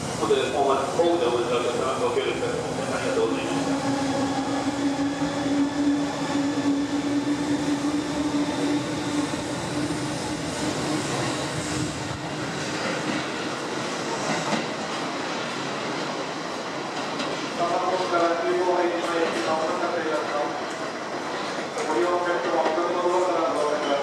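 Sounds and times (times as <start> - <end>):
train wheel and track noise: 0.0 - 24.0.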